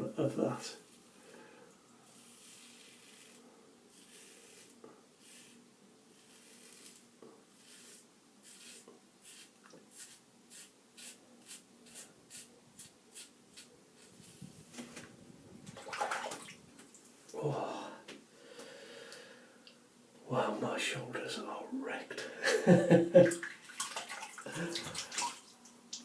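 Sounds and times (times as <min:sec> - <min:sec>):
razor scraping stubble: 0:02.1 - 0:14.4.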